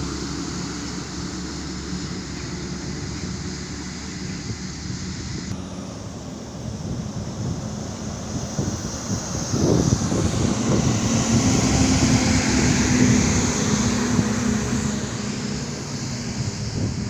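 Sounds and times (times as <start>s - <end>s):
highway vehicle noise: 0.0s - 17.0s
wind buffeting microphone: 0.1s - 17.0s.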